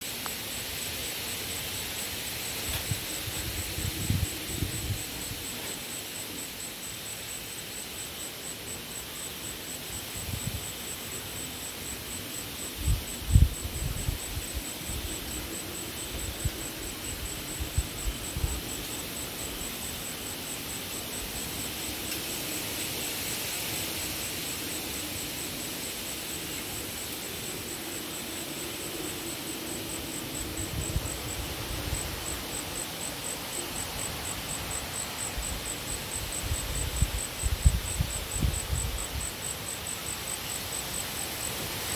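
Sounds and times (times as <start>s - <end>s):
cricket trilling: 0.2s - 41.9s
wind buffeting microphone: 2.6s - 5.4s, 35.4s - 39.3s.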